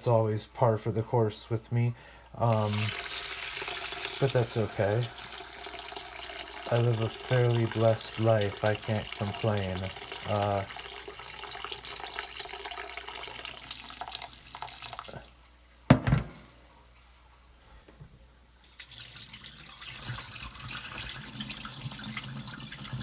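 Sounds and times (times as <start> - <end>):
tap water running into sink: 2.4 - 15.2, 18.6 - 23.0
sharp knock: 15.9 - 16.5.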